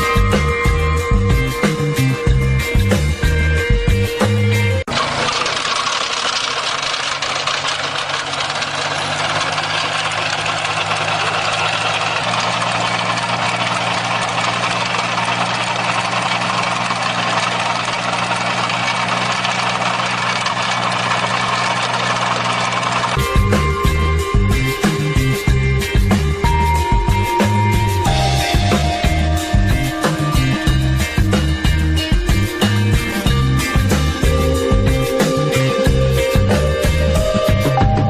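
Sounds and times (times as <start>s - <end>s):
dense mechanical noise: 0.2s - 38.0s
machine engine running: 4.8s - 27.2s.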